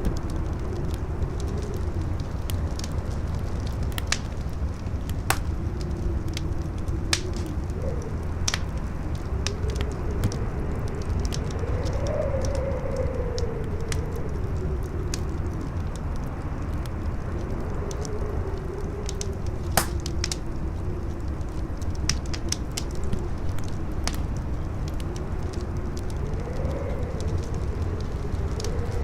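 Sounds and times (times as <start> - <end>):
campfire crackling and popping: 0.0 - 29.0
wind howling: 0.0 - 29.0.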